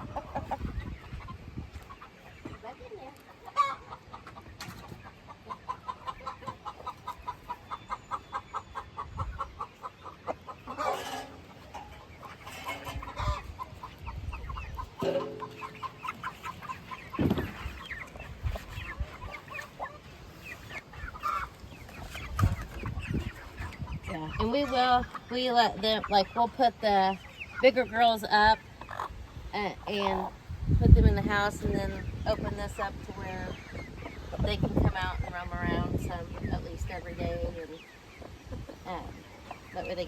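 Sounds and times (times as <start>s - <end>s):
chicks peeping: 0.0s - 40.0s
louder poultry calls: 3.4s - 26.5s, 27.1s - 30.5s.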